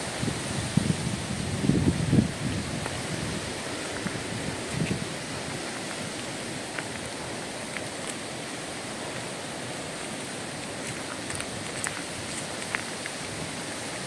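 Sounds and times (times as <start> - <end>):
even rushing hiss: 0.0 - 14.0.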